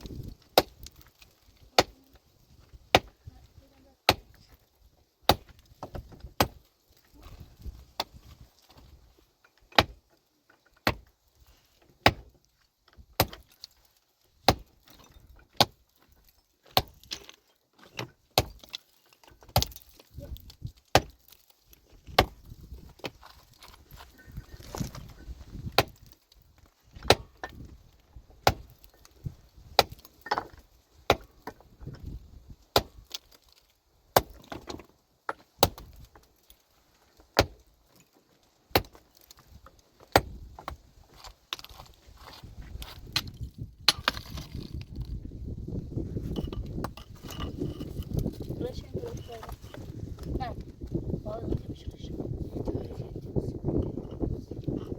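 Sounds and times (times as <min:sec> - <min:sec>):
metal tool striking rock: 0:02.9 - 0:03.1, 0:10.8 - 0:11.1, 0:12.9 - 0:13.7, 0:14.4 - 0:21.4, 0:25.7 - 0:26.2, 0:28.4 - 0:29.0, 0:29.8 - 0:32.1, 0:32.7 - 0:33.4, 0:34.2 - 0:36.2, 0:38.7 - 0:39.0, 0:40.0 - 0:45.2, 0:46.2 - 0:49.9
rubble scraping: 0:18.1 - 0:26.1, 0:40.3 - 0:54.9.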